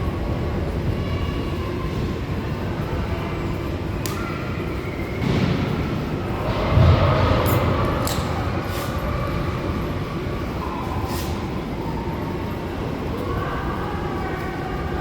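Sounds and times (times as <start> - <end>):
skating and arena rumble: 0.0 - 15.0.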